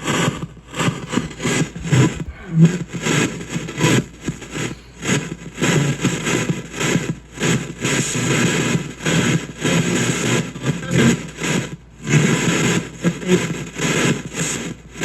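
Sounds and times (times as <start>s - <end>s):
choppy radio static: 0.0s - 2.8s.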